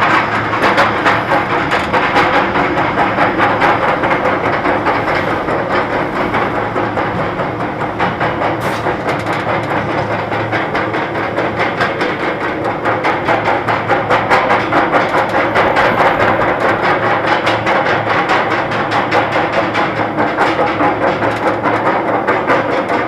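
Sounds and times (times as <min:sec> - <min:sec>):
mechanical hum: 0:00.0 - 0:23.0
roller coaster chain lift clatter: 0:00.0 - 0:23.0.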